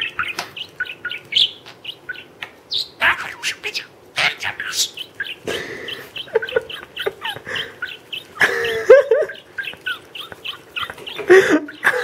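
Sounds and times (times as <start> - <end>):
parrot chirps and clicks: 0.0 - 12.0
parrot harsh rasp: 3.0 - 5.0.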